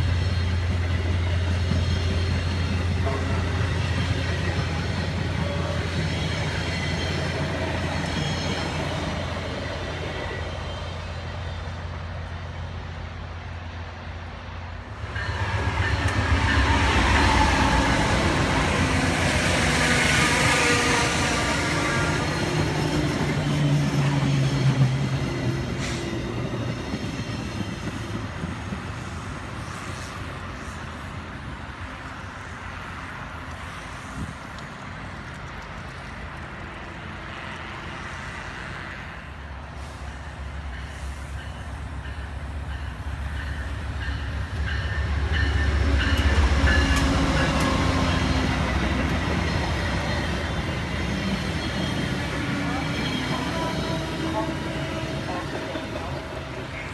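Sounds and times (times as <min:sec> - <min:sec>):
passing train cars: 0:00.0 - 0:56.9
train engine rumble: 0:00.0 - 0:56.9
wheel-on-rail noise: 0:14.8 - 0:39.7.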